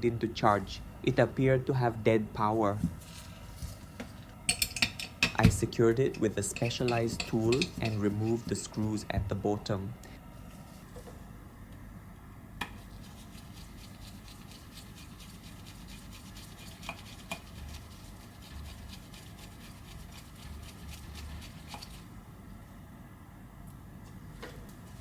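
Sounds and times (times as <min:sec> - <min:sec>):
small tools clicking and scratching: 0:06.6 - 0:08.6.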